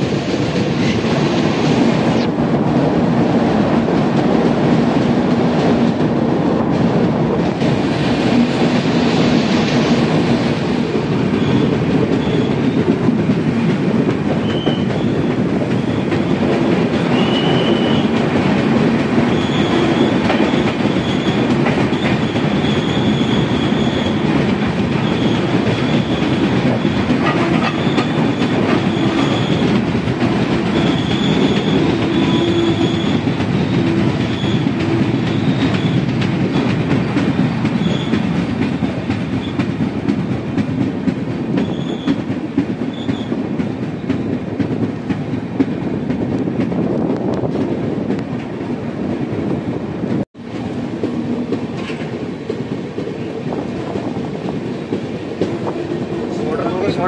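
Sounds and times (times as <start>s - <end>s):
train coach rumble: 0.0s - 57.0s
wheels clacking over rail joints: 9.7s - 48.6s, 50.4s - 57.0s
high-pitched wheel squeal: 19.3s - 24.2s, 27.6s - 29.6s, 30.7s - 33.2s.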